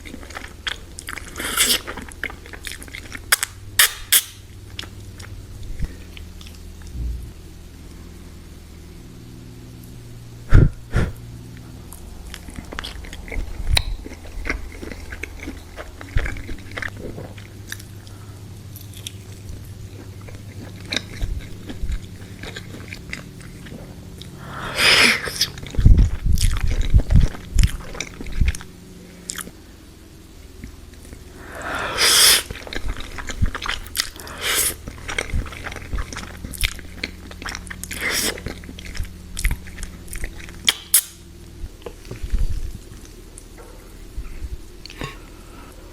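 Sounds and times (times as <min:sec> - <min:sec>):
person chewing food: 0:00.0 - 0:07.0, 0:11.5 - 0:29.6, 0:30.5 - 0:45.9
low hum: 0:00.0 - 0:45.9
wet mouth clicks and smacks: 0:40.6 - 0:41.2.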